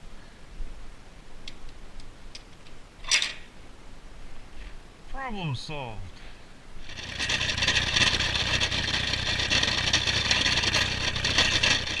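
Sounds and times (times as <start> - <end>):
snowplow blade scraping ice: 6.8 - 12.0
tractor engine running: 6.8 - 12.0.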